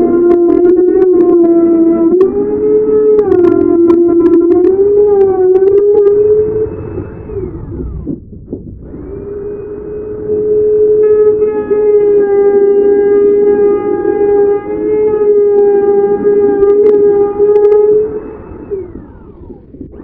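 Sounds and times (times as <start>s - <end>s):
router motor whining: 0.0s - 20.0s.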